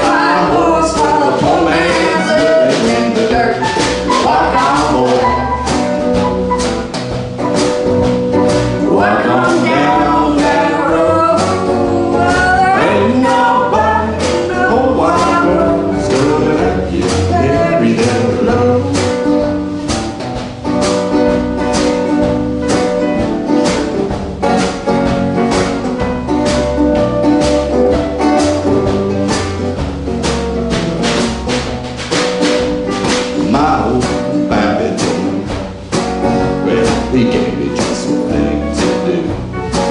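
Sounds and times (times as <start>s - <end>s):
person singing: 0.0s - 5.7s, 8.8s - 19.6s, 33.4s - 35.6s, 36.5s - 39.5s
live band playing: 0.0s - 39.9s.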